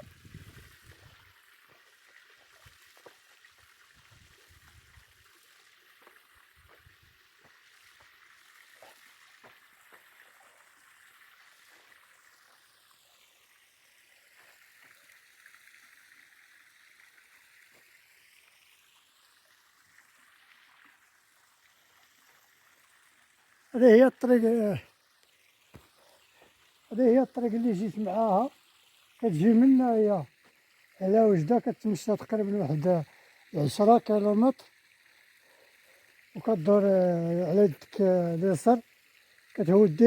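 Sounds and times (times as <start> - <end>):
faint stream rushing: 19.6 - 40.0.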